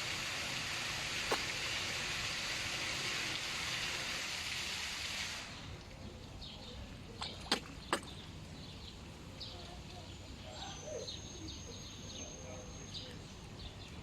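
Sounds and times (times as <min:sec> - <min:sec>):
rushing splashing water: 0:00.0 - 0:05.8.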